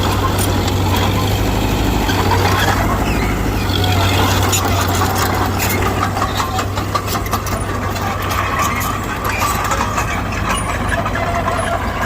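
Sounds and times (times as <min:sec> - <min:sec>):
bulldozer diesel engine droning: 0:00.0 - 0:12.0
irregular clicks and clatter: 0:03.6 - 0:12.0.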